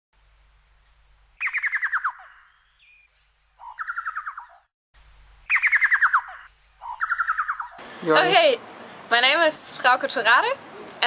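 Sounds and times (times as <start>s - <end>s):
bird whistled notes: 1.4s - 4.6s, 5.5s - 7.8s.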